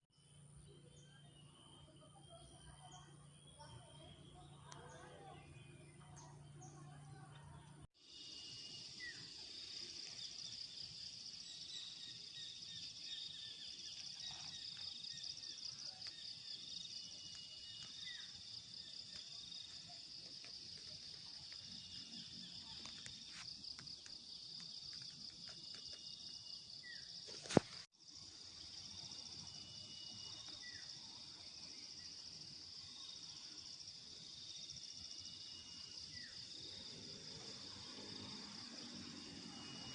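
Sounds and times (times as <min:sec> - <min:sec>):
insect chorus: 0:08.0 - 0:39.9.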